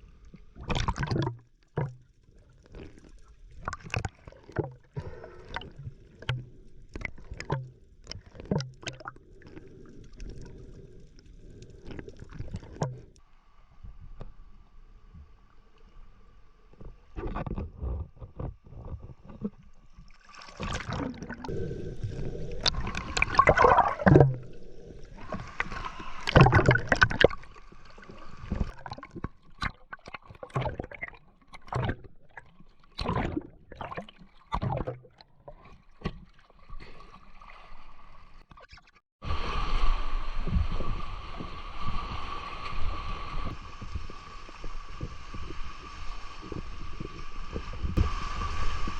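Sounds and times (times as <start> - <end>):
water splashing and sloshing: 0.0 - 13.3, 15.1 - 48.9
rush of water: 20.1 - 29.7, 39.2 - 48.9.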